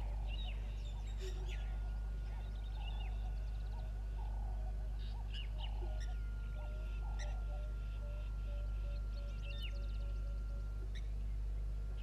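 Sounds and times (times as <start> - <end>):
birds making hoarse calls: 0.0 - 11.1
steady low hum: 0.0 - 12.0.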